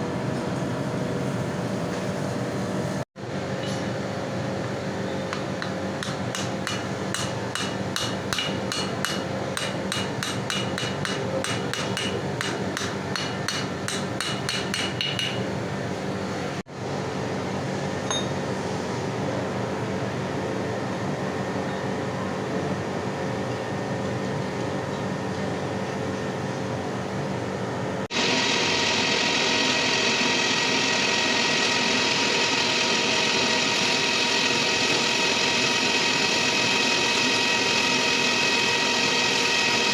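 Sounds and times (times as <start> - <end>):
machining machine droning: 28.1 - 39.9.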